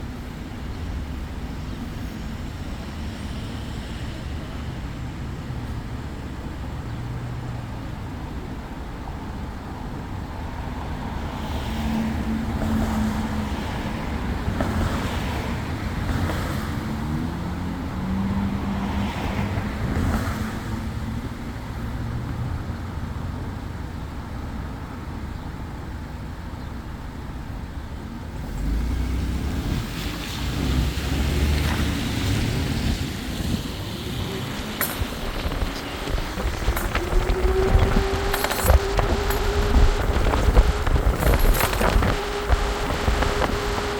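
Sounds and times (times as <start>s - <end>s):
road noise: 0.0s - 43.9s
vehicle engine: 28.1s - 43.9s
wind on microphone: 29.5s - 43.9s
heavy low rumble: 33.2s - 43.9s.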